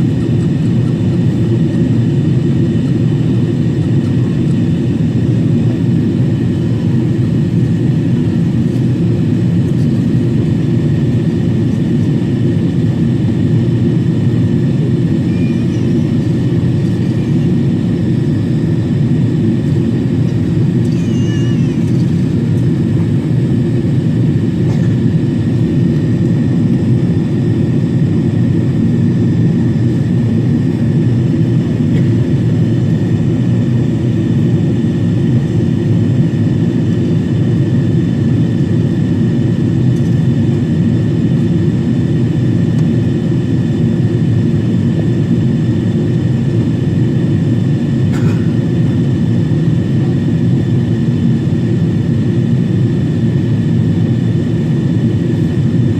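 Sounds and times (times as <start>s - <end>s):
faint high whine: 15.0s - 18.9s.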